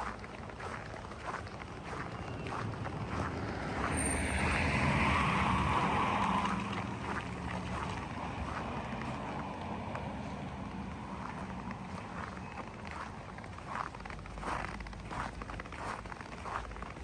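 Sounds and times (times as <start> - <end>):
vehicle driving past: 1.8 - 15.3.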